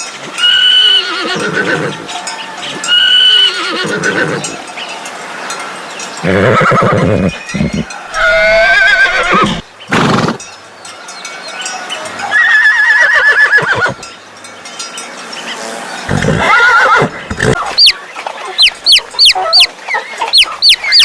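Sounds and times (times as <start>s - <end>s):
horse whinnying: 0.3s - 2.1s, 2.7s - 4.6s, 6.2s - 10.4s, 12.3s - 14.0s, 16.1s - 18.0s.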